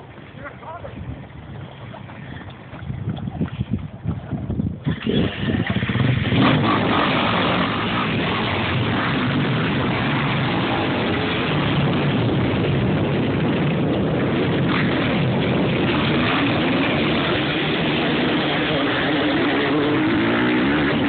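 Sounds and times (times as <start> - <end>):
motocross bike engines revving: 4.8 - 21.0.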